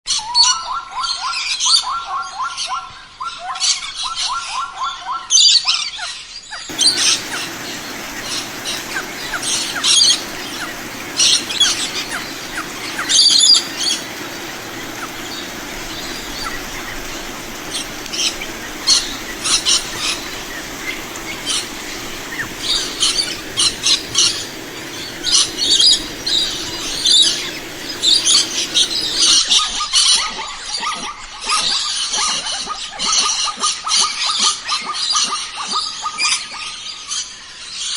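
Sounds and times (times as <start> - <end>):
birds chirping: 6.7 - 29.4
steady rushing noise: 6.7 - 29.4.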